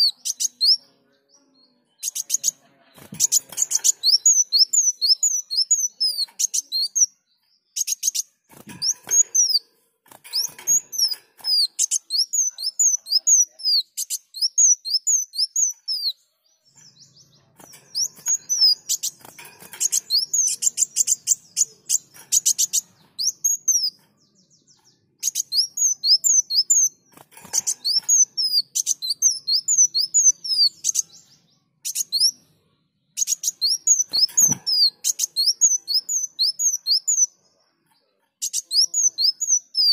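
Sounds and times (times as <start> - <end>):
sunbird sharp chirps: 0.0 - 1.0, 1.9 - 9.7, 10.3 - 32.4, 33.1 - 37.4.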